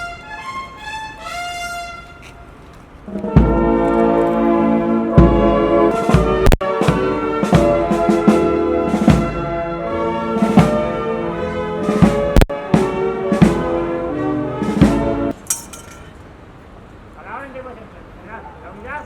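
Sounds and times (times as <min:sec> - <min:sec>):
brass chords: 0:00.0 - 0:15.4
drum strikes: 0:03.2 - 0:04.1, 0:05.2 - 0:09.7, 0:10.4 - 0:11.2, 0:11.8 - 0:14.0, 0:14.6 - 0:15.4.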